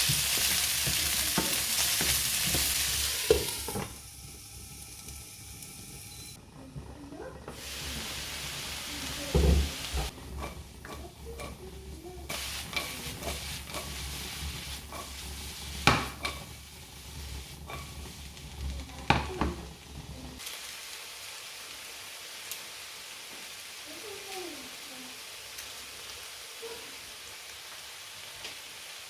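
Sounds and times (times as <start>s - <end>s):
food sizzling in a pan: 0.0s - 29.0s
utensil knocking and scraping pan: 9.3s - 19.7s.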